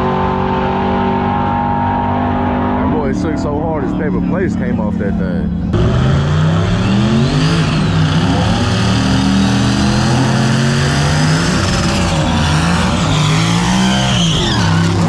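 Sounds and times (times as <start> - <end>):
truck engines revving: 0.0 - 15.0.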